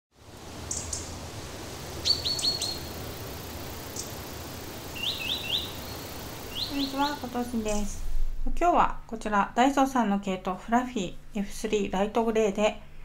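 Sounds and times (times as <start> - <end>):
steady low hum: 0.2 - 12.1
small songbird chirping: 0.6 - 1.2, 1.9 - 7.9.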